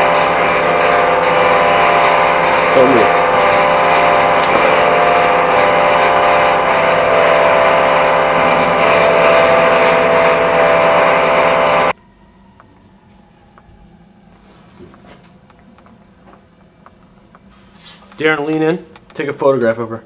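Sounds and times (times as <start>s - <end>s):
loud machine-like drone: 0.0s - 12.0s.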